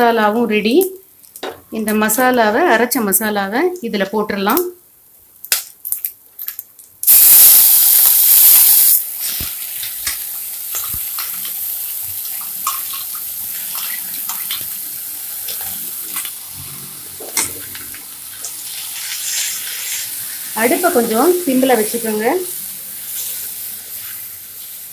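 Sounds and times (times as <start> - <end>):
paste sizzling in hot oil: 7.0 - 24.9.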